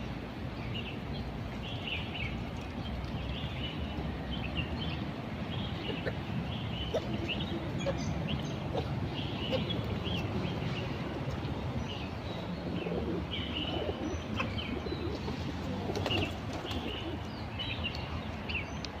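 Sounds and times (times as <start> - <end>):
low background noise: 0.0 - 19.0
wild birds chirping: 0.6 - 19.0
doves cooing: 6.9 - 10.3, 12.8 - 17.3.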